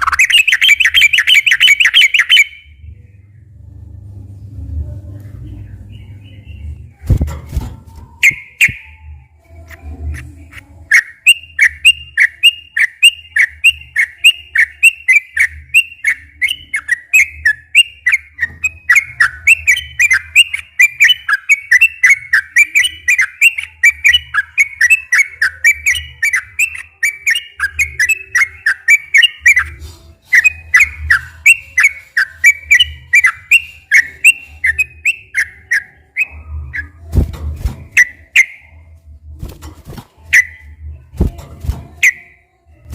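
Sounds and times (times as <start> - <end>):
bulbul singing whistled notes: 0.0 - 2.7, 8.2 - 9.0, 10.9 - 36.9, 40.3 - 40.8.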